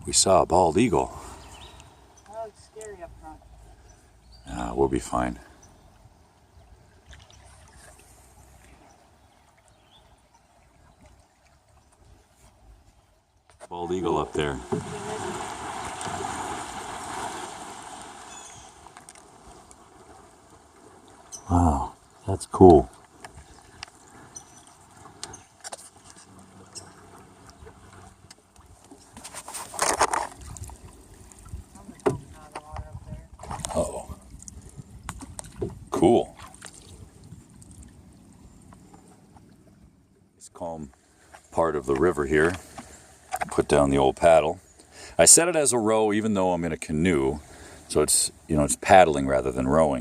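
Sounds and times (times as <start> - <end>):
water trickling and lapping: 0.0 - 50.0.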